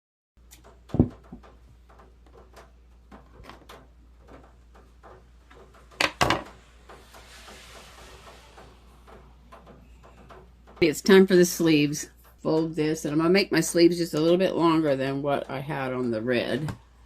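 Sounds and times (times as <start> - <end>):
loud knocks: 0.6 - 10.9.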